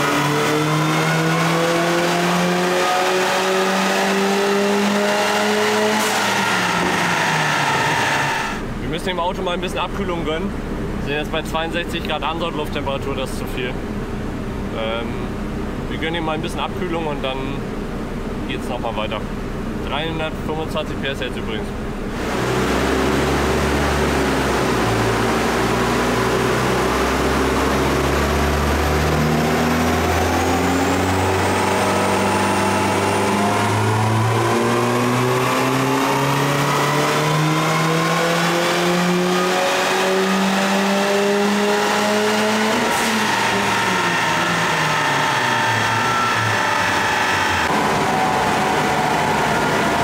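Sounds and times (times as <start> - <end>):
car engine revving under load: 0.0 - 50.0.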